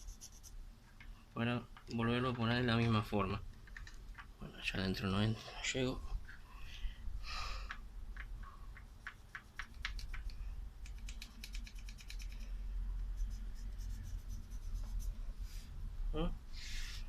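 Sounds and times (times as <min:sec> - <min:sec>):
small clicks on fan parts: 0:07.6 - 0:13.1
quick run of clicks: 0:07.7 - 0:12.5.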